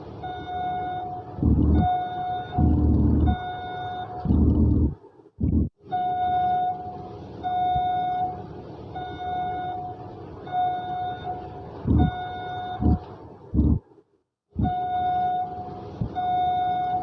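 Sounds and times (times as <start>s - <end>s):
toy vehicle beeping: 0.2s - 4.9s, 9.0s - 13.0s, 14.6s - 17.0s
low rattling hum: 1.0s - 9.0s, 9.8s - 17.0s.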